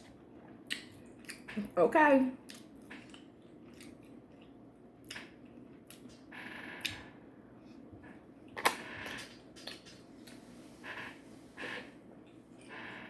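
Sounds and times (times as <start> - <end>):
chewing: 0.0 - 1.6, 2.4 - 6.2.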